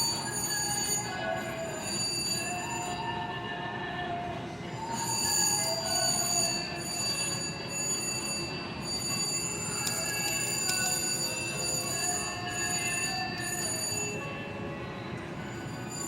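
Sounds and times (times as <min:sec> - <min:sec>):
slot machines ringing and chiming: 0:04.8 - 0:14.4.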